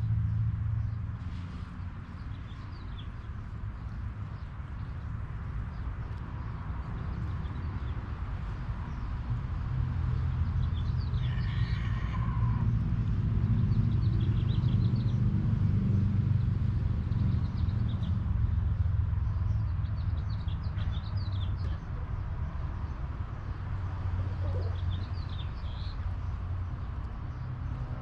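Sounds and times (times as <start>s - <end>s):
birds chirping: 17.1s - 28.0s.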